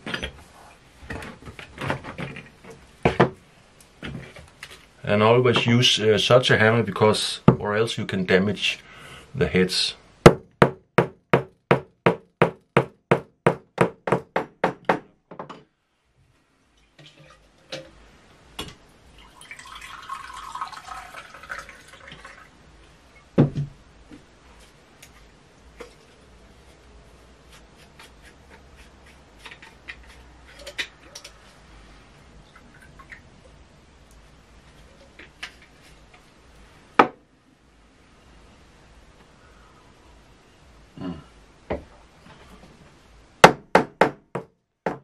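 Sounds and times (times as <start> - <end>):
liquid pouring into a mug: 19.1 - 22.5.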